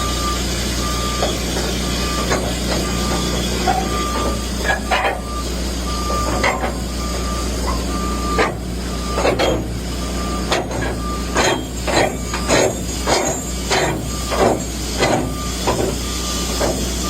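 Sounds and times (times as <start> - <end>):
short electronic beeps: 0.0 - 4.5, 5.2 - 12.6, 15.1 - 16.5
equipment humming: 0.0 - 17.0
bursts of hiss and clank: 7.6 - 17.0.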